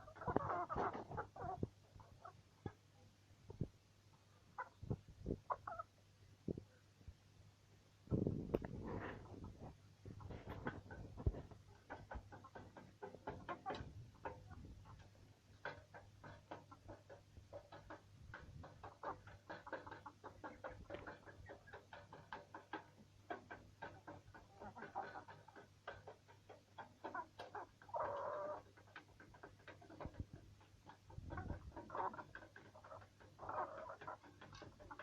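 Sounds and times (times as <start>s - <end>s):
beaks tapping on feed: 10.2s - 35.0s.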